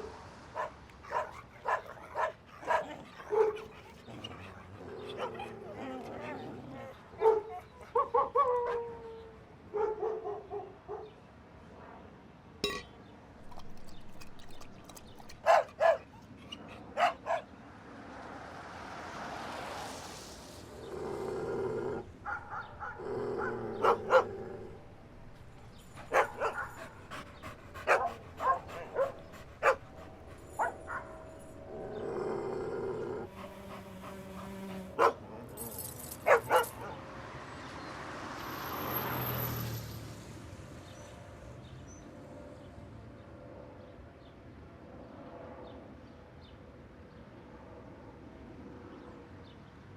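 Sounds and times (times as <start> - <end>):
dogs barking: 0.5 - 8.9, 9.7 - 11.1, 13.5 - 17.5, 22.2 - 32.0, 33.2 - 37.0
dog whining: 1.1 - 8.8, 25.8 - 36.7
hiss: 19.1 - 21.4.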